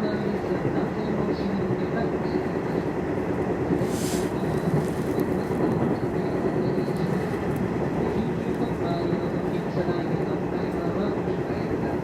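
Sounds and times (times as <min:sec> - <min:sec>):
train hum: 0:00.0 - 0:12.0
train wheels rumbling on rail: 0:00.0 - 0:12.0
brief hiss: 0:03.8 - 0:04.4.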